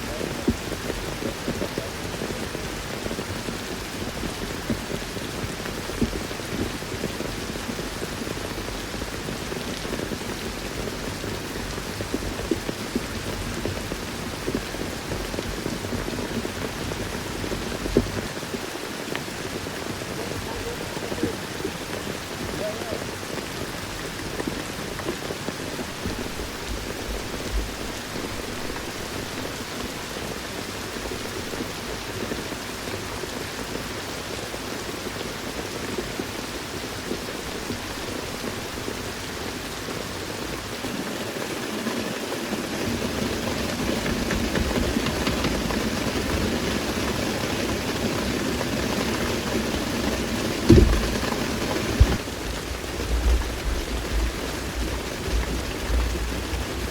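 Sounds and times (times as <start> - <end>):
steady rain falling: 0.0 - 56.9
sharp thump: 50.7 - 51.3.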